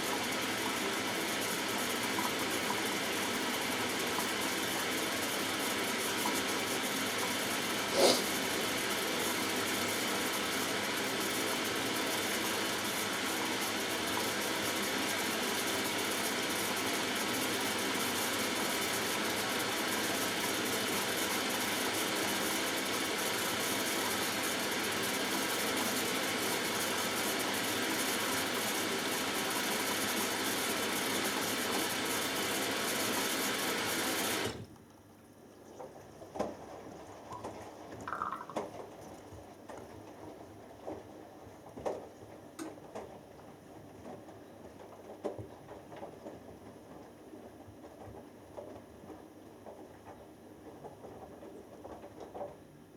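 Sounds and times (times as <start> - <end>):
washing machine running: 0.0 - 52.9
faint machine knocks and clicks: 37.3 - 52.8.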